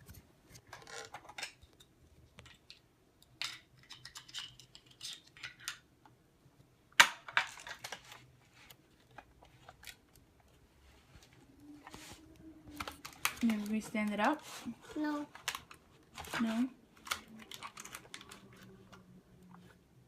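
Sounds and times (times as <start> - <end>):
plastic toy clicks and rattles: 3.4 - 5.8, 15.3 - 18.6.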